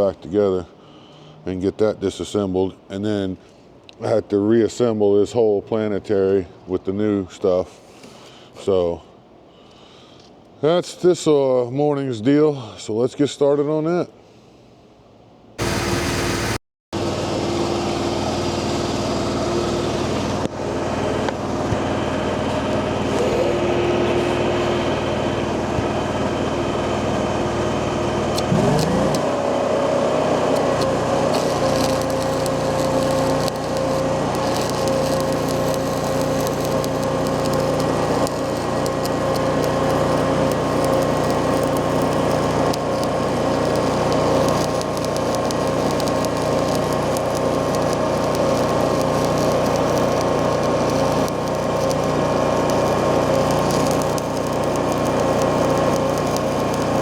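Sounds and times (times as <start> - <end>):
machine motor running: 19.1 - 57.0.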